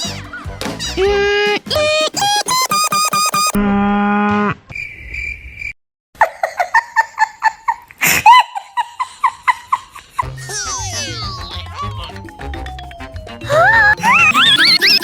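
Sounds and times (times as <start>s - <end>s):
quick chirping blips: 1.7s - 3.6s, 14.0s - 15.0s
faint high beep: 1.8s - 3.6s
music with falling slide: 12.1s - 15.0s.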